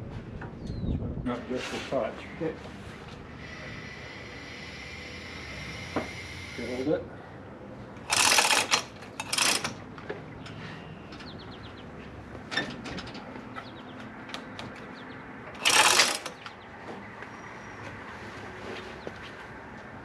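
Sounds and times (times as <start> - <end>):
ratchet wrench clicking: 8.1 - 9.8, 15.6 - 16.4.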